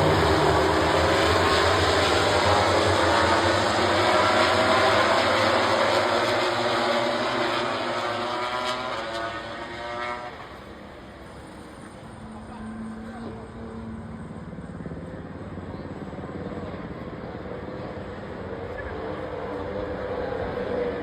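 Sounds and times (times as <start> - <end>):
racing motorcycles passing: 0.0 - 11.2.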